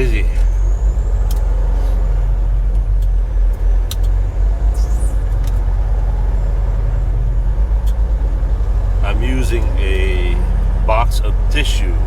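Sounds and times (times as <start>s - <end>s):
truck engine and road rumble: 0.0s - 12.0s
sharp clicks: 2.7s - 4.2s.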